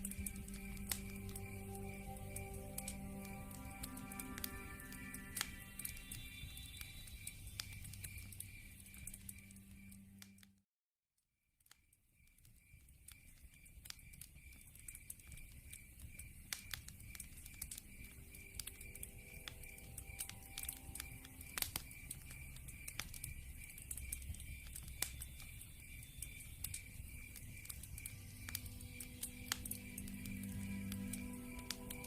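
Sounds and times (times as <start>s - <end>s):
pulsed high chirping: 0.0s - 10.2s, 17.9s - 32.0s
log fire crackling and popping: 0.0s - 10.4s, 11.7s - 32.0s.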